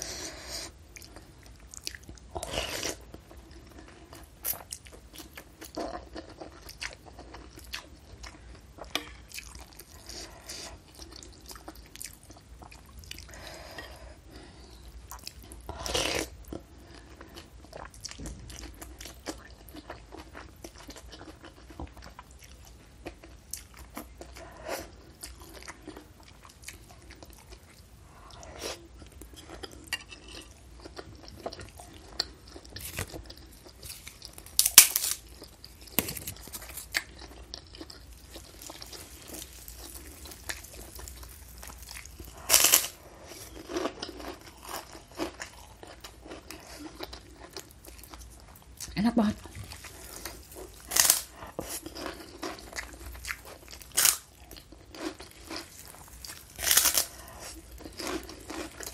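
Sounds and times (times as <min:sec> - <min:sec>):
crunchy bites: 0:32.6 - 0:46.4, 0:49.6 - 0:58.9.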